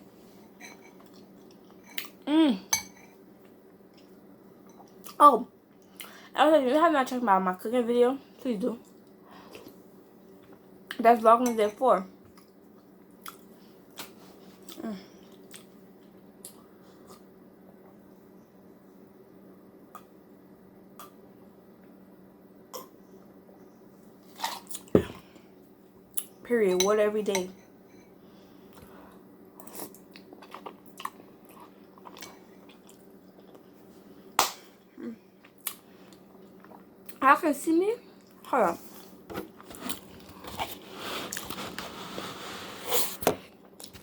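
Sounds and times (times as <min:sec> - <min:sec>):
faint steady hum: 0:00.0 - 0:44.0
person chewing soup: 0:12.3 - 0:17.9, 0:29.6 - 0:33.8, 0:35.0 - 0:37.2
person eating soup: 0:29.6 - 0:33.7, 0:35.0 - 0:36.9, 0:39.0 - 0:43.2.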